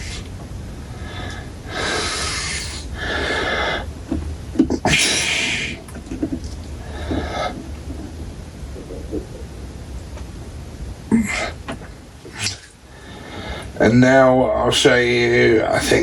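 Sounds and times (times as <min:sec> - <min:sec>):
person breathing out heavily: 0:00.9 - 0:03.9, 0:04.9 - 0:05.9, 0:06.8 - 0:07.7, 0:12.5 - 0:13.8.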